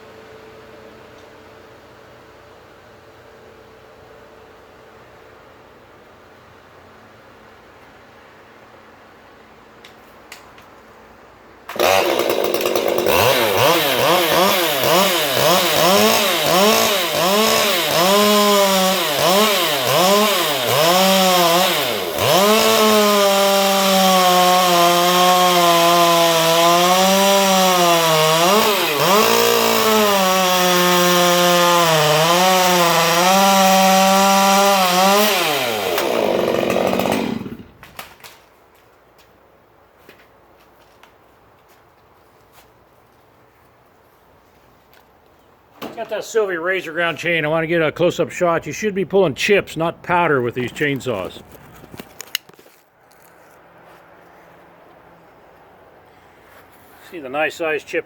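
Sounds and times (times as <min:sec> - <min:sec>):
chainsaw revving and cutting wood: 0:11.7 - 0:38.1, 0:49.2 - 0:53.6.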